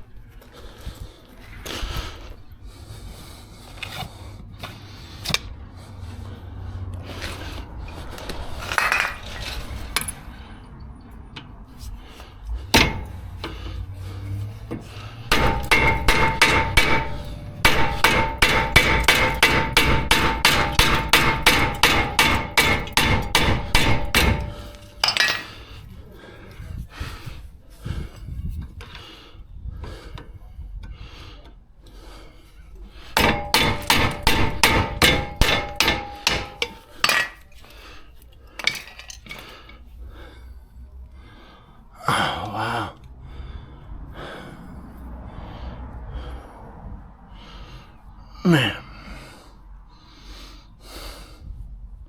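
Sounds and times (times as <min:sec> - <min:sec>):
hammer striking metal: 0:12.7 - 0:13.6, 0:15.2 - 0:25.6, 0:33.1 - 0:37.4.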